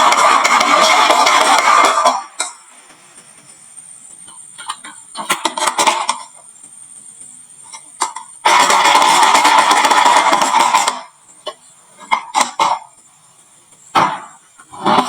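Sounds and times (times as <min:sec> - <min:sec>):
marbles clattering on wooden run: 0:00.0 - 0:02.4, 0:08.2 - 0:11.2.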